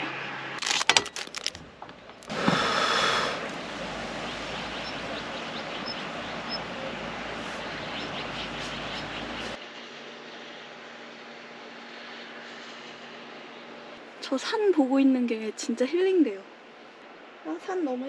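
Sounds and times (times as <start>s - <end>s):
plastic wrapper crinkling: 0.6s - 1.7s
steady rain falling: 2.2s - 9.6s.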